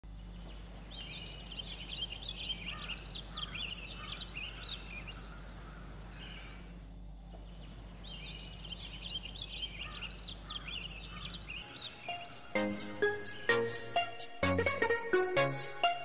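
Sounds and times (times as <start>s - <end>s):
steady low hum: 0.0s - 15.0s
bird warbling and chirping: 0.3s - 6.7s, 7.5s - 12.6s.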